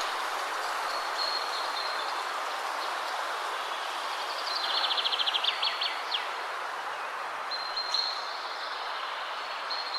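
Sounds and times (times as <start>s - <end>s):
wind rushing through trees: 0.0s - 9.9s.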